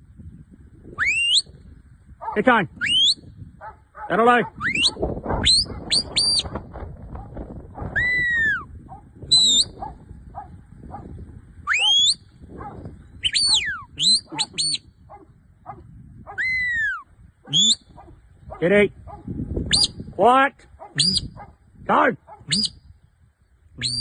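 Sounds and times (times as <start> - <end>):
whistle commands sweeping in pitch: 1.0 - 1.6, 2.8 - 3.3, 4.6 - 6.5, 8.0 - 8.7, 9.3 - 9.8, 11.7 - 12.2, 13.2 - 14.9, 16.4 - 17.9, 19.7 - 20.0, 21.0 - 21.4, 22.5 - 22.8, 23.8 - 24.0.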